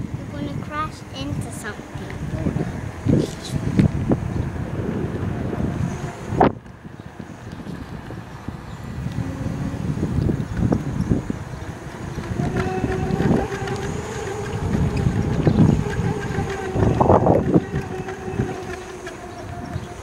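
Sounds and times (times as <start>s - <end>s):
electric motor hum: 0.0s - 20.0s
wind buffeting microphone: 0.0s - 20.0s.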